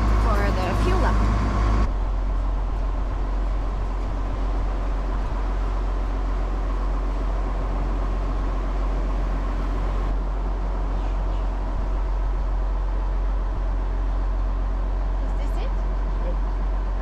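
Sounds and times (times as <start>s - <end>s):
water noise: 0.0s - 10.8s
motor boat engine droning: 0.0s - 17.0s
wind: 0.0s - 17.0s.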